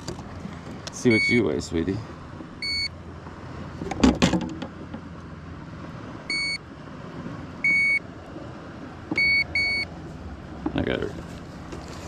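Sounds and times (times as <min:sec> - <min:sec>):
short electronic beeps: 0:01.1 - 0:01.4, 0:02.6 - 0:03.0, 0:06.3 - 0:06.6, 0:07.6 - 0:08.0, 0:09.2 - 0:09.9.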